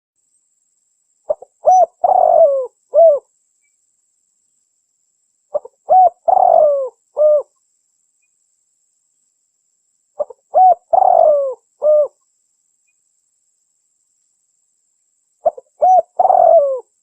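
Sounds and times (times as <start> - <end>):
dove cooing: 1.3 - 3.3, 5.5 - 7.5, 10.2 - 12.2, 15.4 - 16.9.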